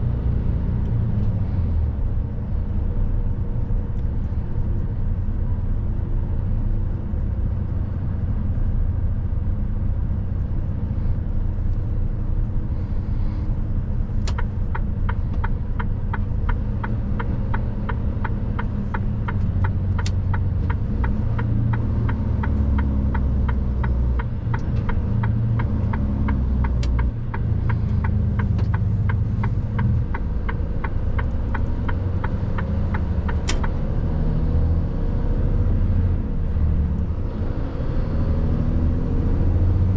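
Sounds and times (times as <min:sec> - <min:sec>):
diesel truck engine running: 0:00.0 - 0:34.4
turn signal ticking: 0:14.1 - 0:34.0.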